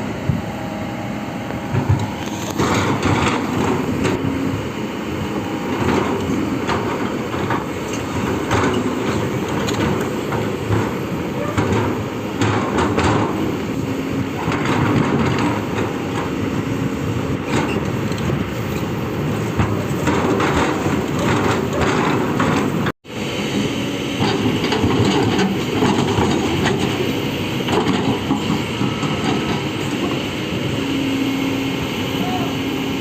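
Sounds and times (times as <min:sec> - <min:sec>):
excavator diesel engine running: 0:00.0 - 0:33.0
metal clanking and grinding: 0:17.4 - 0:23.0, 0:24.2 - 0:30.2.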